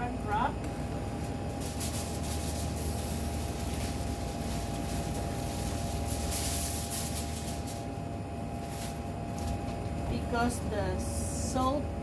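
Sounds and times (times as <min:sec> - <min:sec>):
background hum: 0:00.0 - 0:12.0
plastic wrap crinkling: 0:01.2 - 0:10.6.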